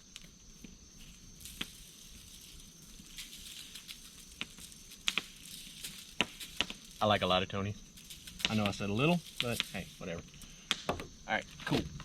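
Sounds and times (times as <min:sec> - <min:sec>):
seasoning shaken onto foil: 0:01.0 - 0:10.2.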